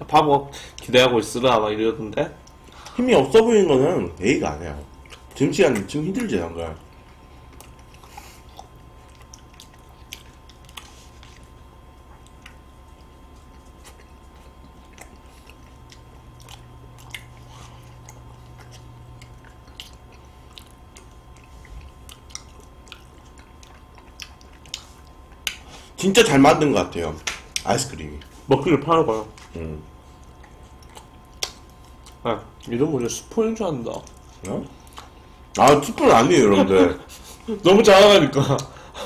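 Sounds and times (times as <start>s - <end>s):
low steady hum: 0.0s - 39.0s
person chewing: 4.8s - 26.0s, 27.2s - 32.8s, 33.8s - 37.7s.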